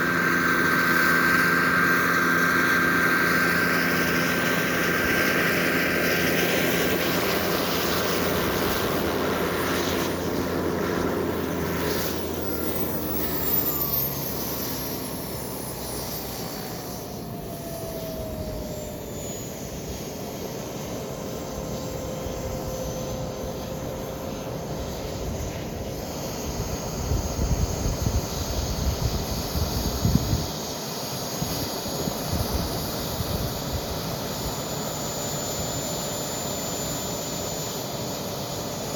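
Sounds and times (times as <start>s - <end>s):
jet turbine whining past: 0.0s - 38.9s.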